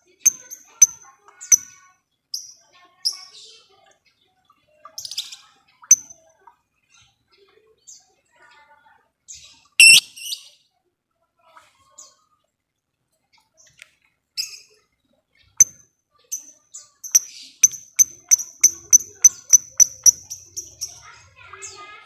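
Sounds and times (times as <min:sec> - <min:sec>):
lovebird chirping and chattering: 0:00.2 - 0:01.8, 0:05.0 - 0:06.1, 0:09.8 - 0:10.4, 0:15.6 - 0:21.8.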